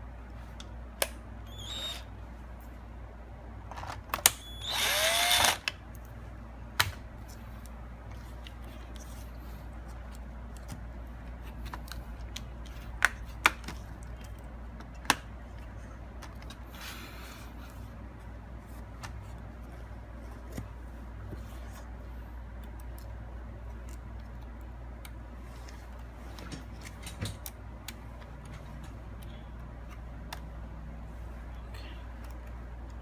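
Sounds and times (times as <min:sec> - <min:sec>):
electric screwdriver whirring: 0:01.5 - 0:02.1, 0:04.4 - 0:05.7.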